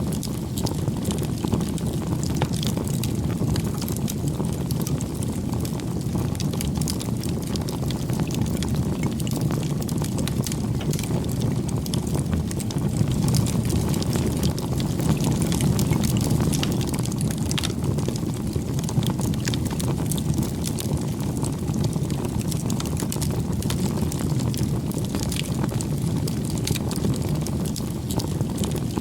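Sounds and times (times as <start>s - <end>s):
campfire flames rushing: 0.0s - 29.0s
wood crackling and popping: 0.0s - 29.0s.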